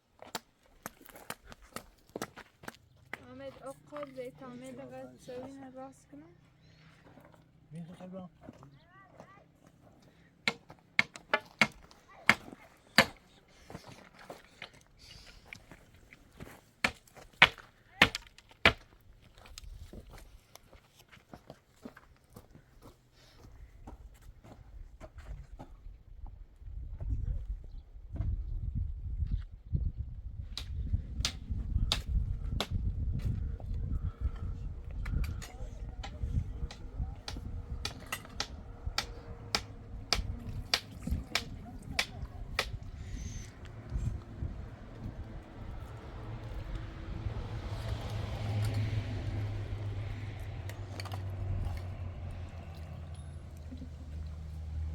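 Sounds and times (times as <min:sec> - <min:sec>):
tool striking wood: 0:10.5 - 0:13.2, 0:36.0 - 0:42.8.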